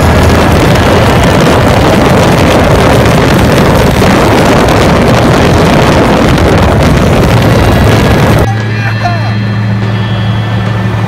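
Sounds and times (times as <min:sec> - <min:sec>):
wind noise on microphone: 0:00.0 - 0:08.5
car engine running loud: 0:00.0 - 0:11.0.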